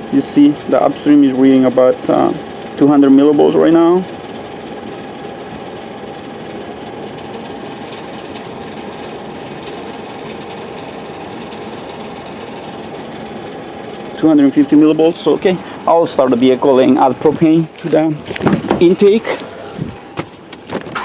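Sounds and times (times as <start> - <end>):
faint hum: 0.0 - 21.0
mechanical running noise: 0.0 - 21.0.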